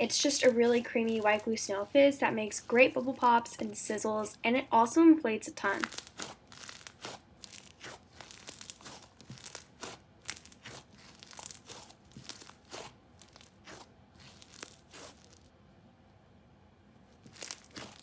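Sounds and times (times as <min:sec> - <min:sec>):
slime squished by hand: 0:05.8 - 0:15.5, 0:17.2 - 0:18.0.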